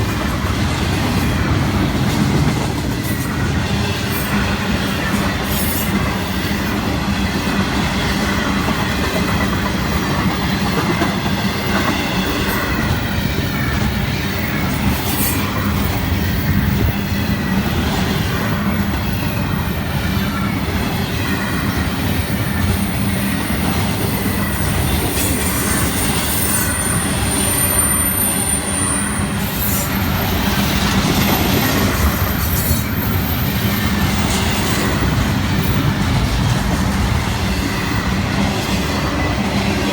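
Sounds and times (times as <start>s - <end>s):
train cars clickety-clack: 0.0s - 39.9s
train wheels on rails: 0.0s - 39.9s
high-pitched wheel squeal: 25.8s - 30.2s.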